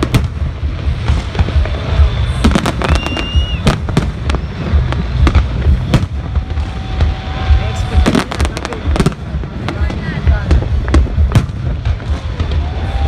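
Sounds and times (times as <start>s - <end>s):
firework whistle: 0.0s - 9.1s, 11.9s - 13.0s
firework bangs and crackles: 0.0s - 13.0s
low booming rumble: 0.0s - 13.0s.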